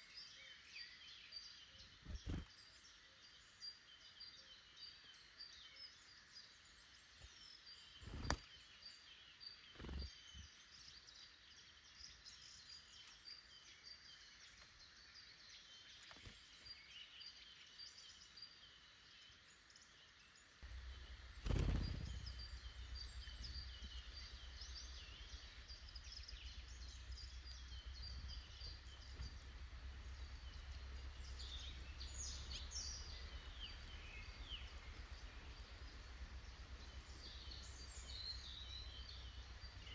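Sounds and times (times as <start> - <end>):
birds chirping: 0.0 - 39.9
low rumble: 20.6 - 39.9.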